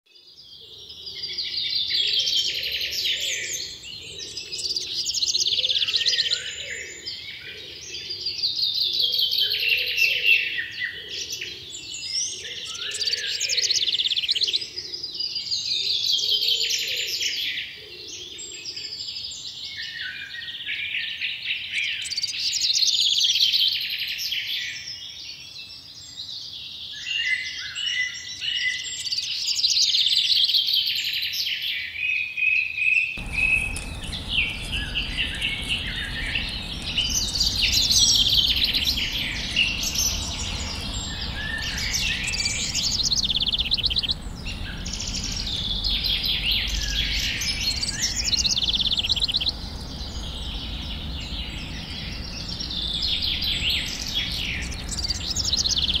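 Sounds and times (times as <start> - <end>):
birds singing and chirping: 0.3 - 20.6, 32.9 - 56.0
low background rumble: 33.2 - 56.0.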